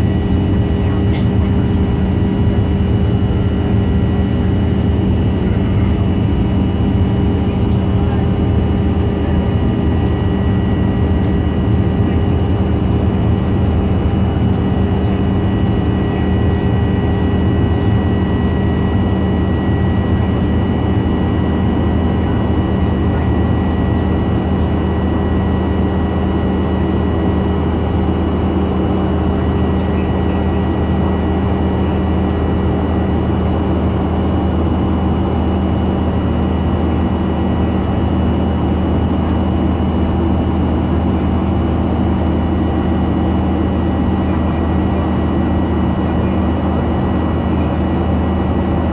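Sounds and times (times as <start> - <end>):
airliner cabin drone: 0.0 - 48.9.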